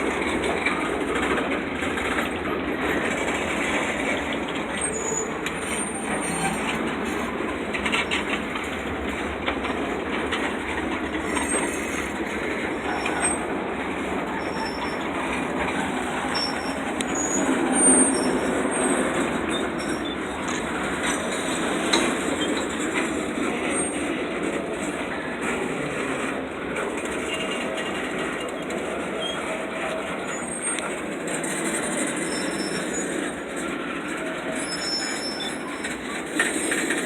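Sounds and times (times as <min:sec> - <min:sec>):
train wheels rumbling on rails: 0:00.0 - 0:37.0
clicks over rail joints: 0:00.1 - 0:14.0
high wheel squeals: 0:01.8 - 0:08.7, 0:10.5 - 0:24.2, 0:24.8 - 0:37.0.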